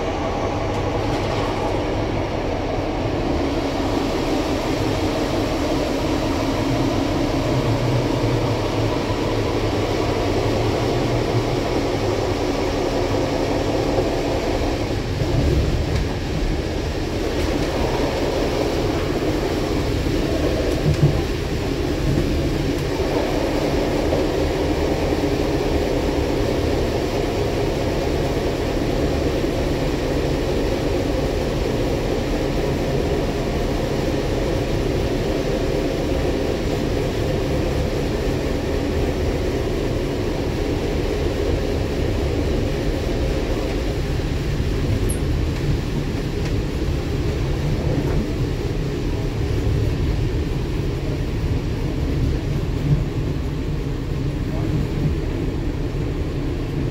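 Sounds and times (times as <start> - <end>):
train wheels on rail: 0.0 - 56.9
train carriage bump: 20.2 - 24.6, 47.8 - 48.5.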